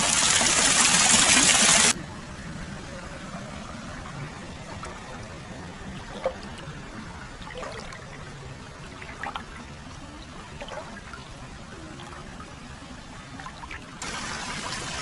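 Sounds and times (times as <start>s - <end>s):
water splashes: 3.6s - 15.0s.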